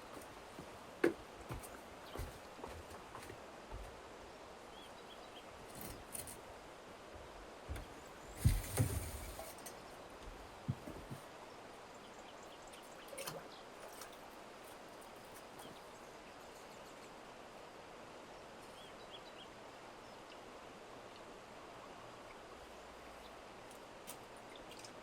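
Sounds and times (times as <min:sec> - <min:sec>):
outdoor background hiss: 0:00.0 - 0:25.0
small birds chirping: 0:03.7 - 0:06.4, 0:11.1 - 0:17.4, 0:22.2 - 0:25.0.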